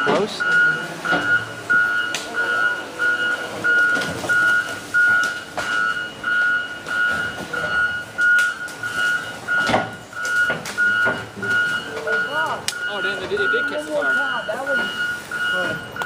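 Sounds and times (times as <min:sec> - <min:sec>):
backup alarm beeping: 0:00.0 - 0:16.0
vehicle noise: 0:00.0 - 0:16.0.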